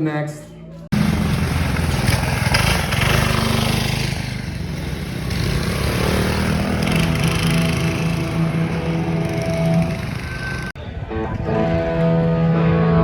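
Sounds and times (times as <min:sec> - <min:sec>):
small petrol engine running: 0:00.9 - 0:10.8.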